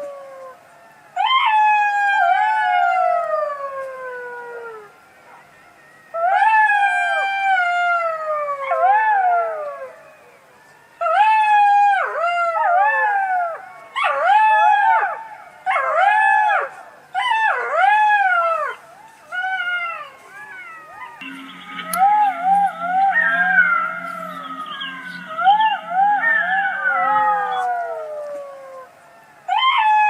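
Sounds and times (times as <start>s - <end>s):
fox calling: 17.2s - 30.0s.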